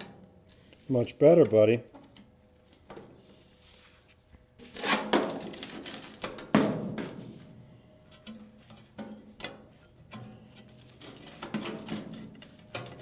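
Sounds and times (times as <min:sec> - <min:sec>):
sheet steel clattering and scraping: 0:04.6 - 0:13.0.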